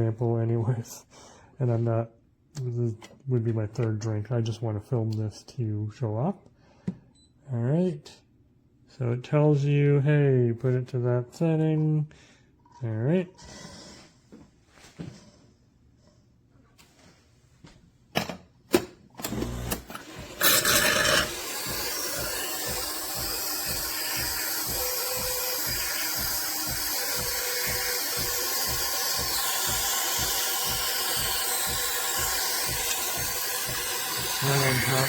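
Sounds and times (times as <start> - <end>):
espresso machine hissing: 19.3 - 35.0
low pulsing of machine pump: 19.4 - 35.0.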